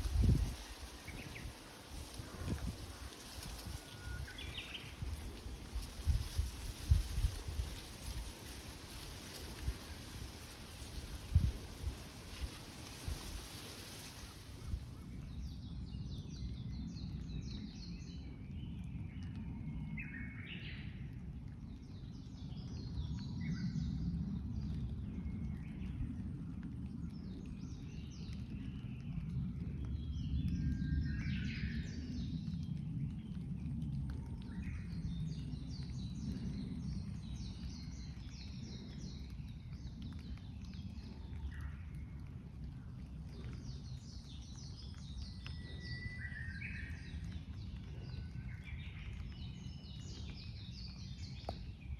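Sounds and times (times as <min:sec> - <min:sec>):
steady low rumble: 0:00.0 - 0:19.7, 0:32.0 - 0:51.9.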